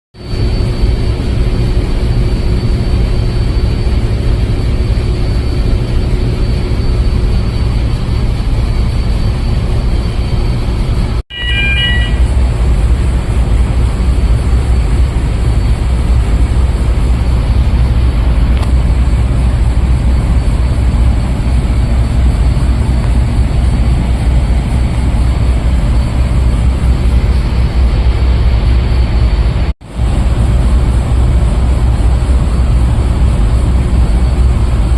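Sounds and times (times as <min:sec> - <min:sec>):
ship machinery rumbling: 0:00.2 - 0:34.9
short high-pitched chirp: 0:11.3 - 0:12.4.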